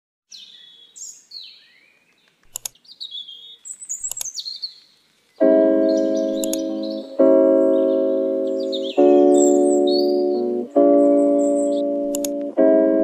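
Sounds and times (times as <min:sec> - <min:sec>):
small birds chirping: 0:00.3 - 0:12.5
clicks: 0:02.2 - 0:02.8, 0:06.3 - 0:06.8, 0:11.8 - 0:12.6
sustained piano chord: 0:05.4 - 0:13.0.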